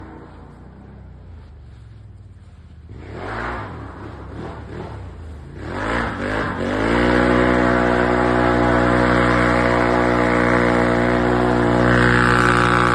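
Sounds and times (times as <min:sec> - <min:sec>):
atv engine revving: 0:02.9 - 0:12.9.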